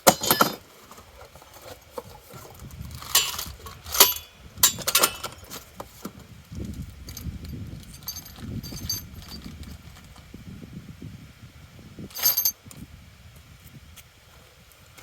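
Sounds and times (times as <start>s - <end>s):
steel parts clinking: 0.0s - 9.6s, 12.1s - 12.6s
low rumbling handling noise: 0.0s - 15.0s.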